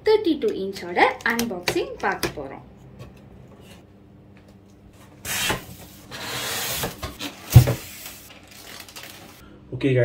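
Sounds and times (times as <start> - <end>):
packaging rubbing and scraping: 5.3 - 9.4.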